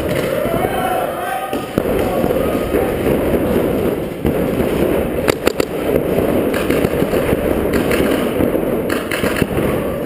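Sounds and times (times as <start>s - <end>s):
paintball guns firing: 0.0s - 0.7s, 1.5s - 10.0s
constant rumbling noise: 0.0s - 10.0s.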